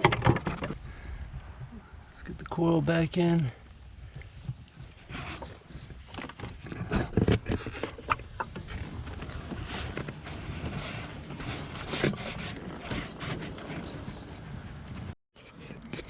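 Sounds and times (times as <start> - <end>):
plastic scraping and knocking on engine: 0.0 - 0.8, 4.1 - 15.1.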